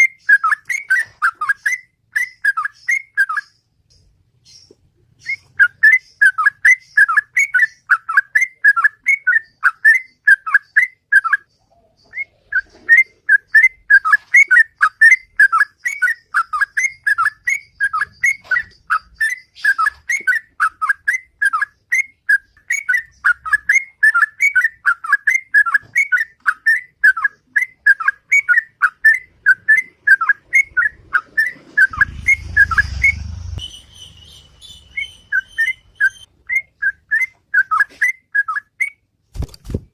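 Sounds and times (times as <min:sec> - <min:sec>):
bird whistling song: 0:00.0 - 0:39.1
low rumble: 0:30.7 - 0:34.3.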